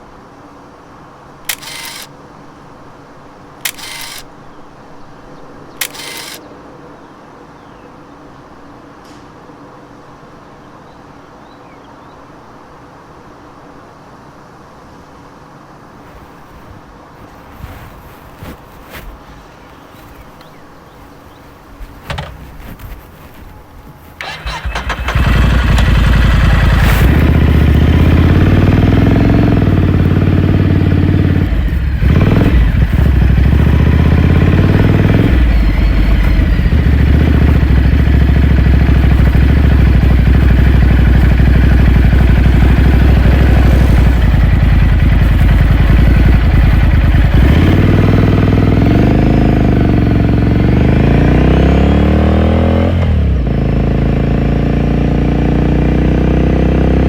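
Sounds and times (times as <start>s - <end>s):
motorcycle engine rising and falling: 1.5s - 2.1s, 3.7s - 4.2s, 5.8s - 6.4s, 24.2s - 57.0s.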